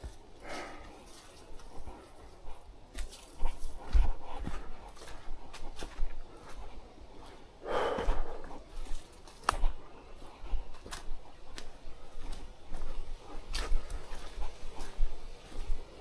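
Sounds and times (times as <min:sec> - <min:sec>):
footsteps clicking on trail: 0:00.0 - 0:16.0
person exhaling hard: 0:07.6 - 0:08.4.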